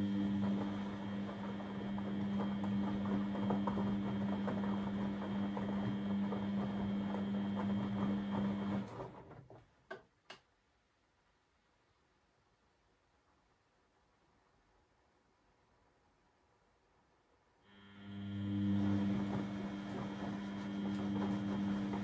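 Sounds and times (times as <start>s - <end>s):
washing machine pump humming: 0.0s - 10.0s, 17.6s - 22.0s.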